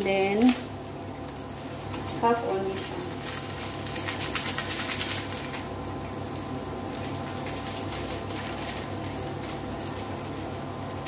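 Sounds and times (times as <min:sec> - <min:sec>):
cooktop humming: 0:00.0 - 0:11.0
tofu sizzling in a pot: 0:00.0 - 0:11.0.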